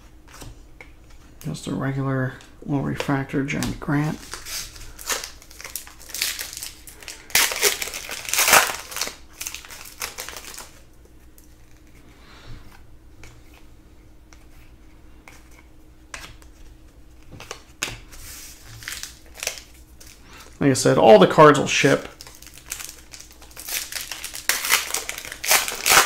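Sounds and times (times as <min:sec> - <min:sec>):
card packs crinkling: 0:01.4 - 0:12.0, 0:16.3 - 0:26.0.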